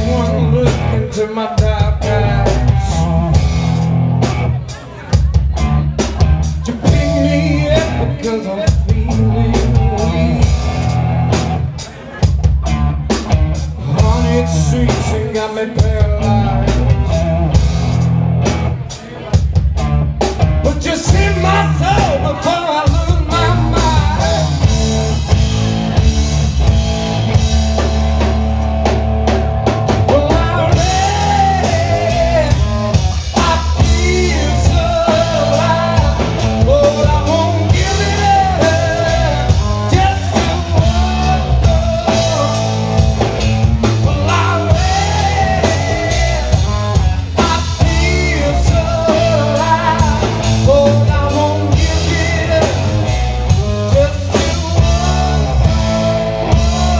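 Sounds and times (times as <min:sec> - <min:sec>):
live rock-blues band playing: 0:00.0 - 0:56.9
pitch-bending melody line: 0:06.6 - 0:08.2.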